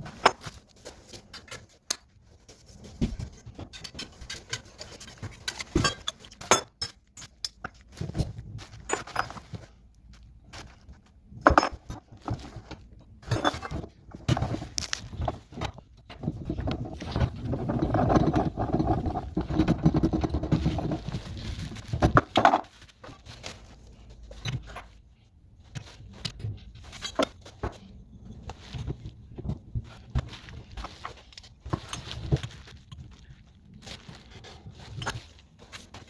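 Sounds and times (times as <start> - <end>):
tools and metal parts clinking: 3.2 - 9.7, 11.4 - 25.0, 25.7 - 28.8.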